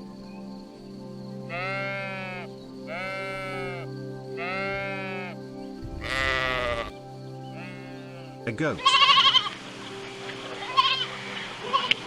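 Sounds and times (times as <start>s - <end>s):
background music drone: 0.0s - 12.0s
sheep bleating: 1.5s - 5.4s, 6.0s - 6.9s, 7.6s - 9.6s, 10.6s - 12.0s.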